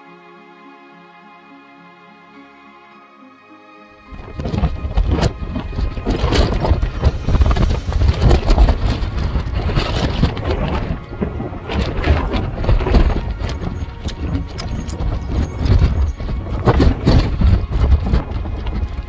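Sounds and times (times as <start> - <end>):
strong wind buffeting microphone: 4.1 - 19.0.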